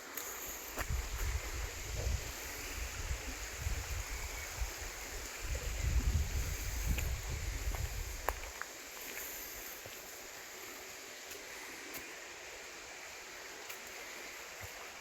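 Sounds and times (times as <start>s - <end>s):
wind buffeting microphone: 0.8s - 8.5s.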